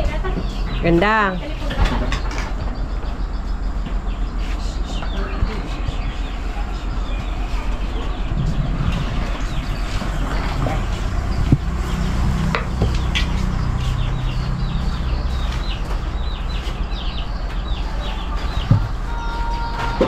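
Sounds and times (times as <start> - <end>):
low hum: 0.0 - 20.0
bird calling in high notes: 18.1 - 20.0.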